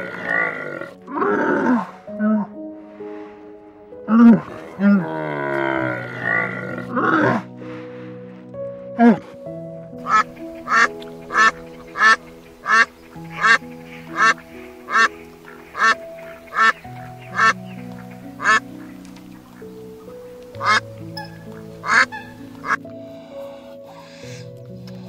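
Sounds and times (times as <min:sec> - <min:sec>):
soft background music: 0:00.0 - 0:25.0
duck calling: 0:10.0 - 0:23.2.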